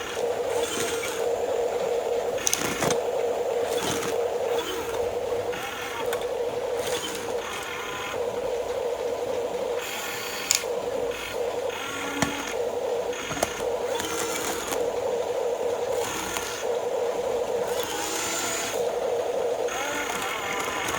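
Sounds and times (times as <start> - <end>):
small electric motors whirring: 0.0 - 20.9
plastic clicks and knocks: 2.4 - 3.1, 12.0 - 12.6, 13.2 - 14.9.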